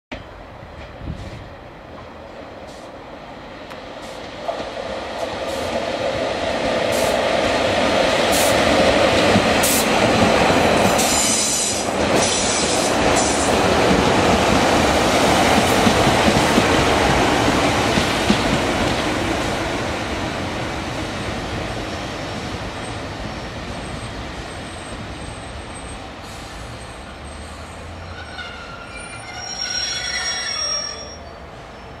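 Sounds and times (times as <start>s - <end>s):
passing train rush: 0.1s - 32.0s
train clicks: 3.7s - 5.8s, 8.2s - 19.3s
high wavering wheel squeals: 28.0s - 32.0s.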